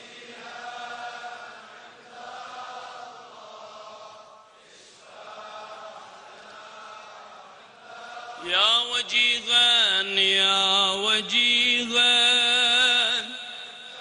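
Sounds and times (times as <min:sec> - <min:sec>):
faint background chanting: 0:00.0 - 0:14.0
person reciting: 0:07.9 - 0:14.0.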